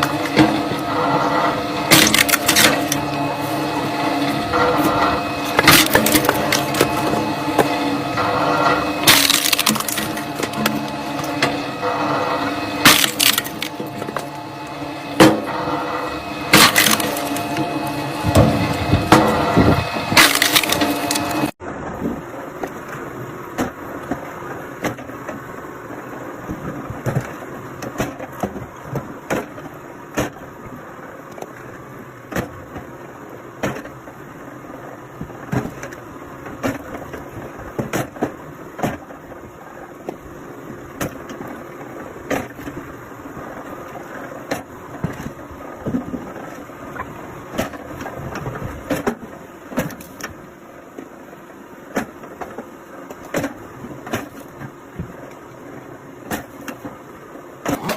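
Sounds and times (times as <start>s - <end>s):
wood cracking and splintering: 0.0s - 15.5s, 16.4s - 21.5s.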